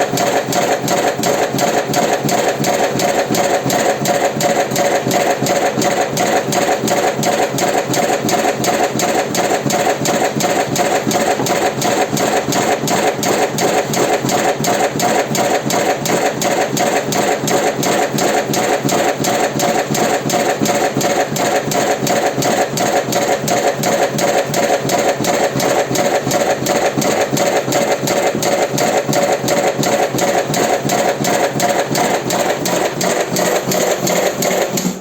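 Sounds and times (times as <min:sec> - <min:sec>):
machine clattering: 0:00.0 - 0:35.0
steady motor hum: 0:00.0 - 0:35.0.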